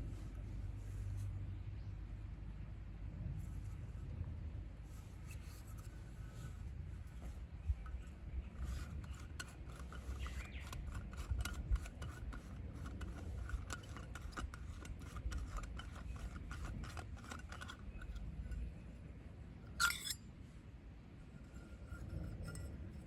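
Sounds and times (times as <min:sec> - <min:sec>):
scraping and rubbing: 0:04.9 - 0:20.2, 0:21.2 - 0:23.0.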